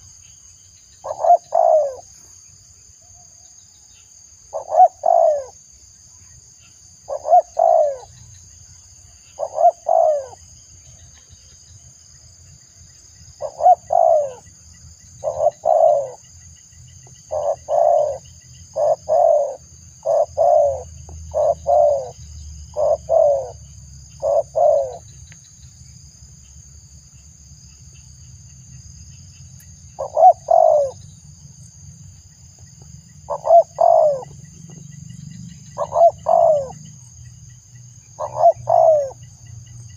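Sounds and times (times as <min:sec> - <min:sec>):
dove cooing: 0:01.0 - 0:02.1, 0:04.5 - 0:05.6, 0:07.1 - 0:08.2, 0:09.4 - 0:10.4, 0:13.4 - 0:14.5, 0:15.2 - 0:16.3, 0:17.3 - 0:23.6, 0:24.2 - 0:25.1, 0:30.0 - 0:31.0, 0:33.3 - 0:34.4, 0:35.8 - 0:36.9, 0:38.2 - 0:39.2.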